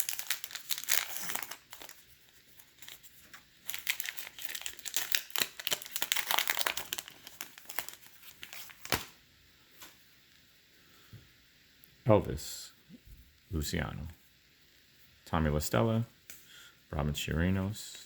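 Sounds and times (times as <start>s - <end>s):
wrapper tearing and crinkling: 0.0s - 9.2s.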